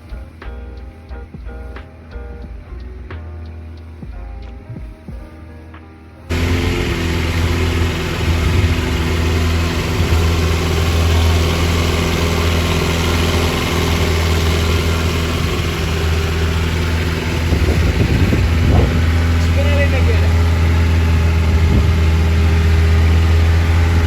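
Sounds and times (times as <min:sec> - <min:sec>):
boat engine running: 0:00.0 - 0:24.0
broad rushing noise: 0:06.0 - 0:24.0.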